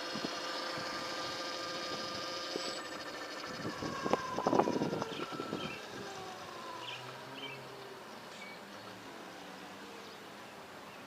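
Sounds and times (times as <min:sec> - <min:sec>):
electric motorcycle motor whine: 0:00.0 - 0:10.3
wind buffeting microphone: 0:03.3 - 0:07.0.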